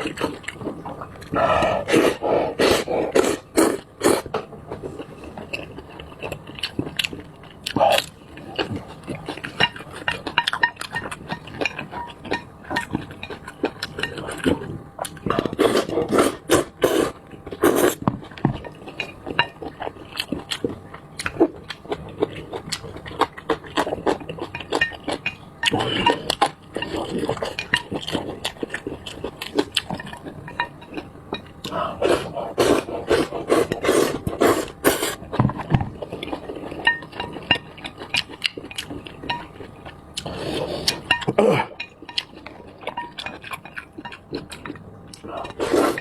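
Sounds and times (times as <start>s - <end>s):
noodles slurped and chewed: 31.6s - 35.4s, 43.3s - 46.0s.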